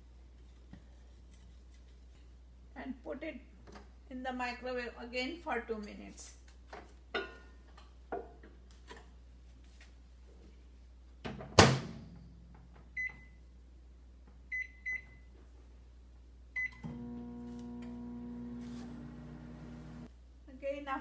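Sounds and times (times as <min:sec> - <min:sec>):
microwave oven humming: 0:16.6 - 0:20.1.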